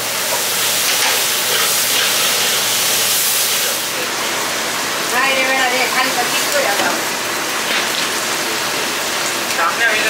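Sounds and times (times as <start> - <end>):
onion sizzling in hot oil: 0.0 - 10.0.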